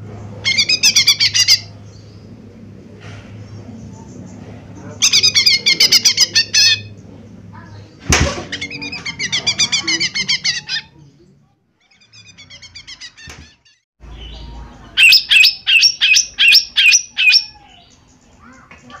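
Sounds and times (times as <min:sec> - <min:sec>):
bird singing chirping trills: 0:00.0 - 0:02.7, 0:14.0 - 0:19.0
loud sharp bird notes: 0:14.0 - 0:18.7.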